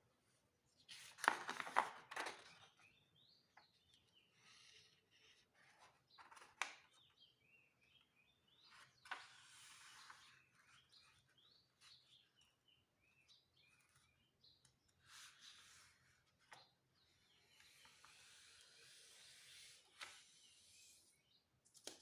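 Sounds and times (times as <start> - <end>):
sharp paper crackles: 0.9 - 2.7
paper rustling and creasing: 0.9 - 2.8, 5.2 - 7.0.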